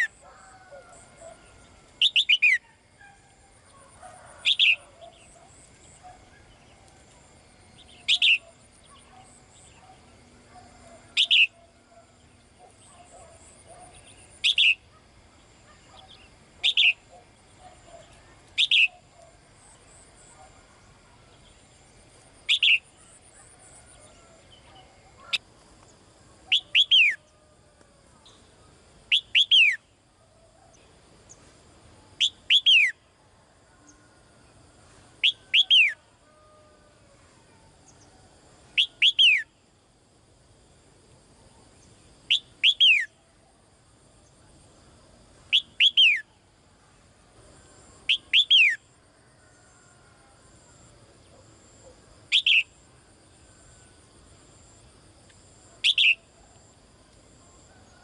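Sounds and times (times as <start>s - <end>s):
faint chirping: 0.0s - 33.1s
bird calling: 7.8s - 15.0s, 24.2s - 25.4s.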